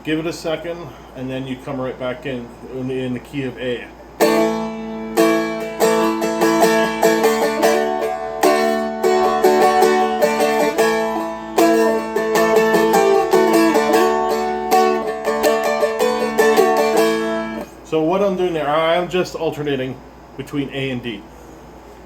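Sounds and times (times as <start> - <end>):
dulcimer strummed with a pick: 4.2 - 17.7.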